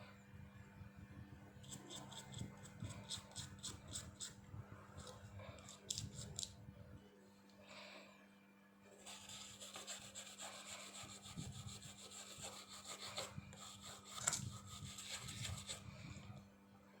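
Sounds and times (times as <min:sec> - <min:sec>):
hands rubbing and scraping a phone: 0:05.0 - 0:06.5, 0:09.0 - 0:15.9.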